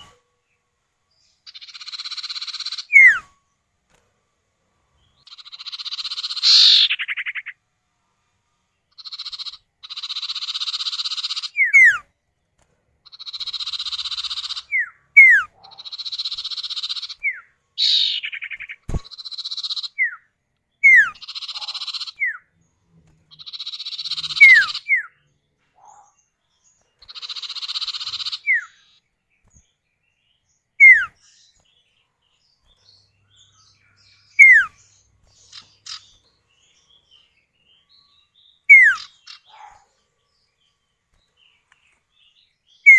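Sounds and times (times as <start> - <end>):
buzzy bird trills: 1.3 - 3.4, 5.0 - 7.6, 8.9 - 12.1, 13.0 - 20.2, 20.8 - 22.5, 23.3 - 25.2, 27.0 - 29.6, 30.8 - 31.7, 32.6 - 40.0
sharp falling bird whistles: 2.9 - 3.3, 30.8 - 31.2, 34.4 - 34.8, 38.7 - 39.1.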